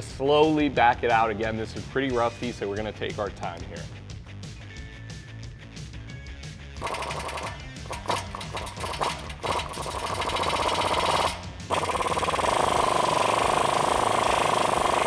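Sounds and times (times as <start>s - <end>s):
impact wrench hammering: 6.8s - 15.0s.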